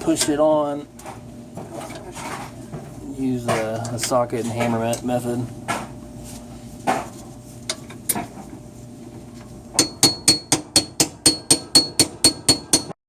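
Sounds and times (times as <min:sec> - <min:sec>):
hammer tapping on metal socket: 0:09.8 - 0:12.9.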